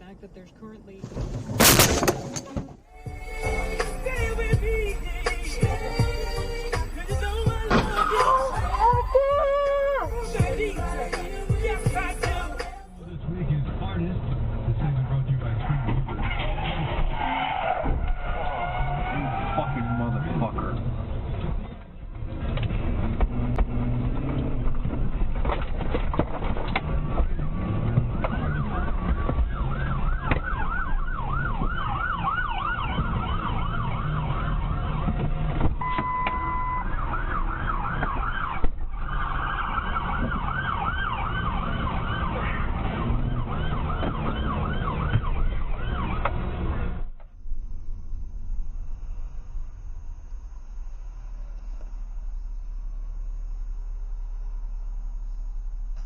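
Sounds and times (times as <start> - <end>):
road and engine rumble: 0.0 - 56.0
emergency vehicle siren: 27.4 - 51.3
steady siren tone: 27.5 - 56.0.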